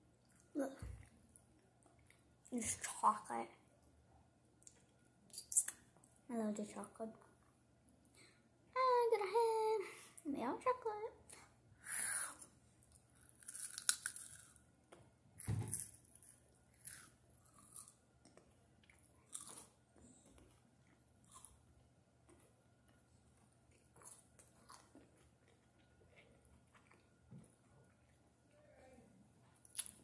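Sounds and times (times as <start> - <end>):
child crunching chocolate: 12.9 - 14.6, 15.4 - 21.6, 22.3 - 27.1.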